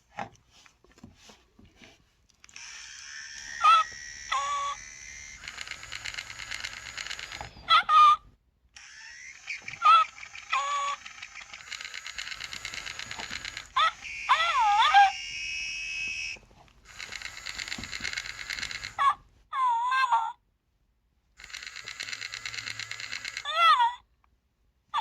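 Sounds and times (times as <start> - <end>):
toy buzzy rattling chatter: 2.5 - 7.9, 8.8 - 19.2, 21.4 - 23.8
toy squeaky chirps: 2.6 - 19.2.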